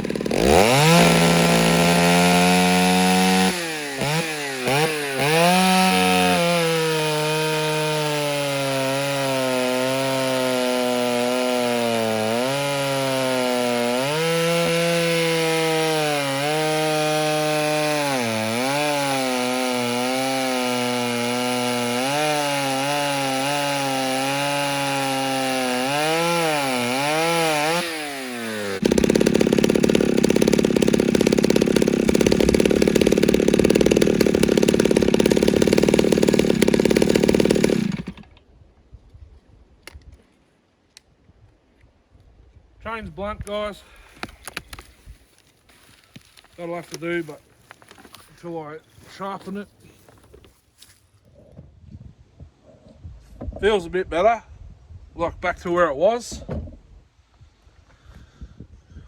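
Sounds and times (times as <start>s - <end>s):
chainsaw cutting wood: 0.0s - 38.4s, 43.4s - 51.0s.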